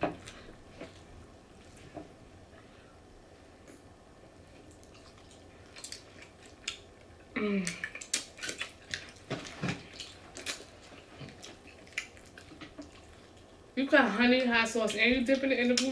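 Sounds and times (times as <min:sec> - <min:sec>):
crunchy chewing: 0:04.6 - 0:07.1, 0:07.7 - 0:13.7.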